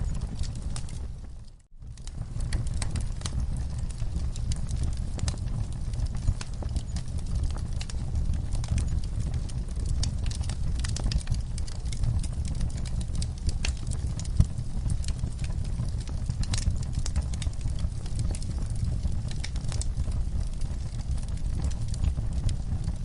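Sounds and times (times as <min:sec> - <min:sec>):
low rumble of flames: 0:00.0 - 0:23.0
wood fire crackling and popping: 0:00.0 - 0:23.0.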